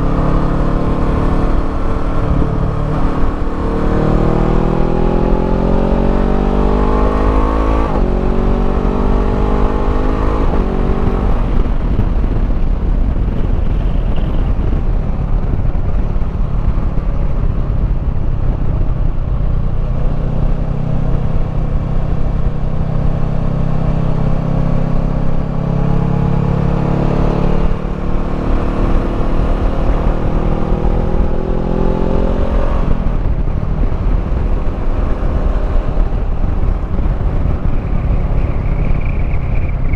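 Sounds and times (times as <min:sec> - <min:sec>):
motorcycle engine accelerating: 0:00.0 - 0:39.9
wind rush: 0:00.0 - 0:39.9.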